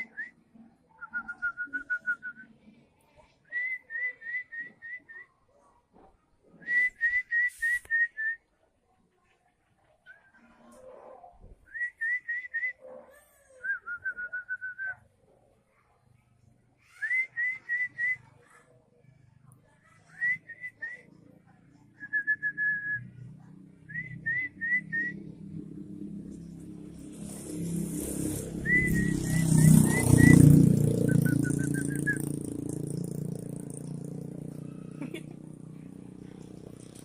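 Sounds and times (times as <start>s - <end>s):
short whistled notes: 6.6s - 8.4s, 28.6s - 32.4s.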